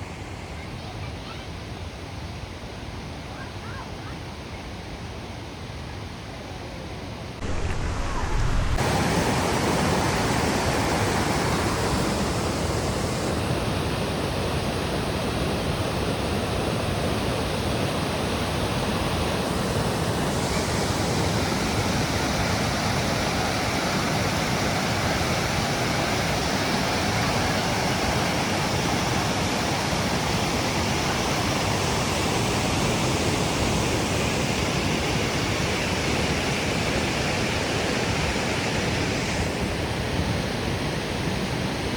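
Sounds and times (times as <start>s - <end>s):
waterfall rushing: 7.4s - 13.3s, 20.3s - 33.2s.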